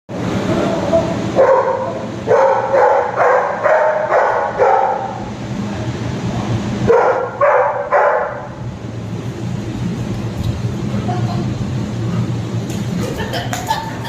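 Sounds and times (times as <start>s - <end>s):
dog barking: 0.8s - 5.2s, 6.9s - 8.5s.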